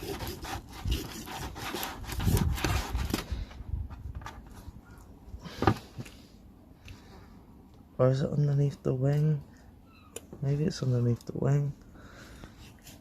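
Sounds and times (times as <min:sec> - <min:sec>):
knife scraping through fish: 0:00.0 - 0:03.2.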